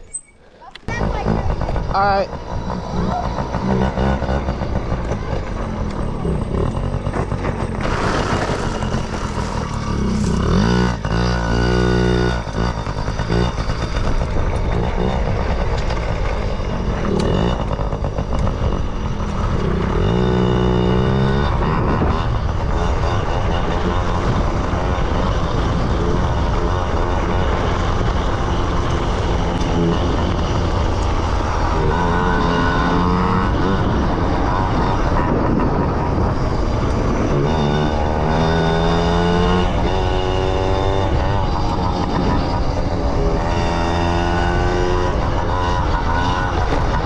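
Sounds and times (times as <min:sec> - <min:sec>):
small two-stroke engine revving: 0:00.9 - 0:47.0.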